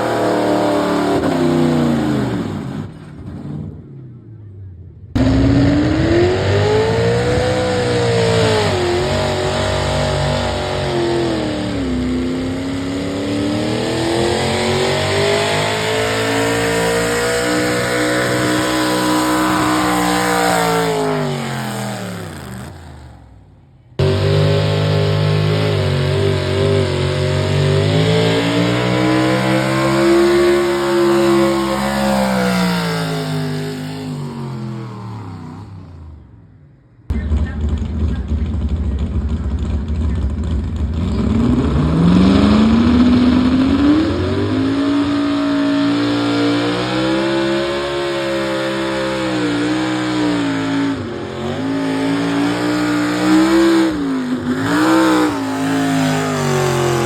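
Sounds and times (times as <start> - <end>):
truck engine revving: 0.0 - 36.3, 37.1 - 57.0.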